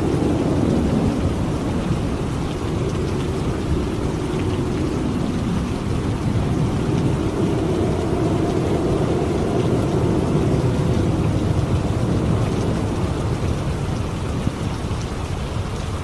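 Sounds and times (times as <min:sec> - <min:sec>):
heavy rain falling: 0:00.0 - 0:16.0
low rumble of thunder: 0:00.0 - 0:16.0.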